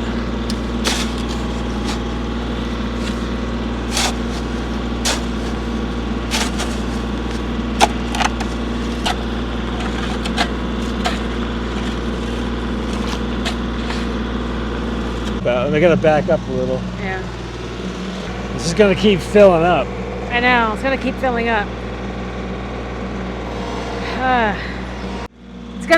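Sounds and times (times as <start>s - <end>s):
engine idling: 0.0s - 25.9s
shovel digging into gravelly dirt: 0.4s - 14.2s.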